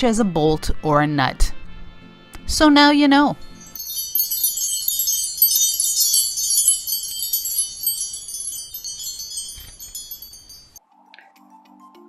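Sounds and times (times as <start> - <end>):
bright tinkling chimes: 3.5 - 10.8.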